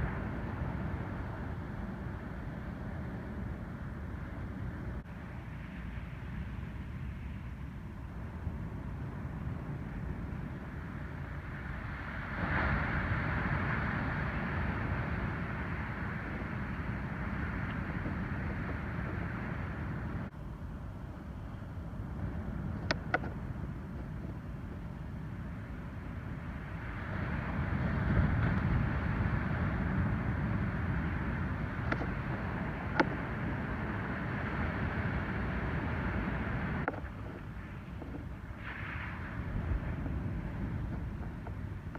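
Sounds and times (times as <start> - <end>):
ocean surf washing on beach: 0.0 - 7.3, 8.3 - 20.3, 21.9 - 41.9
low rumble of waves: 0.0 - 41.9
wave breaking: 11.8 - 20.3.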